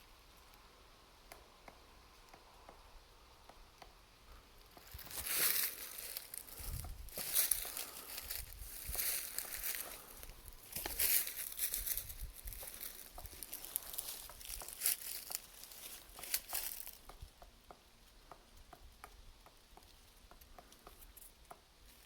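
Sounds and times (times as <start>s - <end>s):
woodpecker tapping on tree: 1.2s - 21.7s
rustling and crackling: 4.6s - 17.2s.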